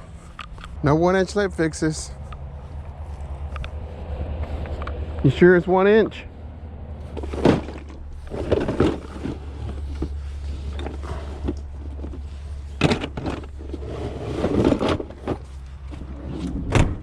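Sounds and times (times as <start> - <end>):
clatter of rummaging through parts: 7.0 - 16.2.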